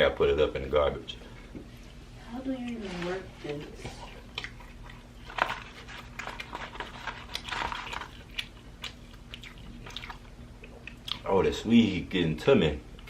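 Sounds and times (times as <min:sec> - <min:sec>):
crunchy bites and chewing: 0:04.0 - 0:11.4.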